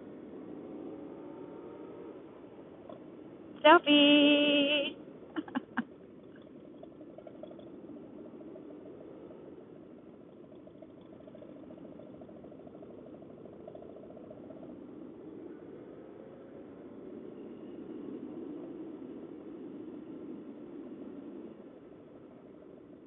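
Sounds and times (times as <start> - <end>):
road and wind noise: 0.0 - 23.0
motorcycle engine running: 4.3 - 16.2.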